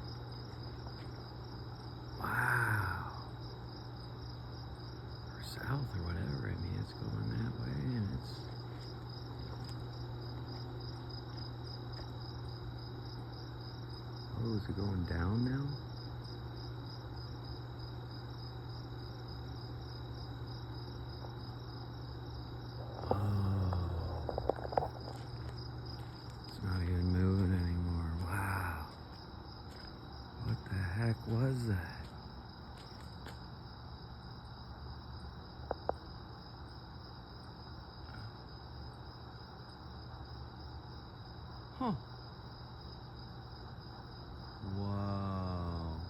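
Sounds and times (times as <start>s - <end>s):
crickets chirping: 0.0s - 46.0s
low hum: 19.1s - 33.4s.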